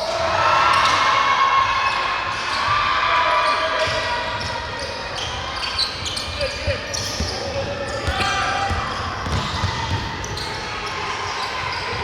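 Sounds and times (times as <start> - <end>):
basketball bouncing on court: 6.6 - 10.7.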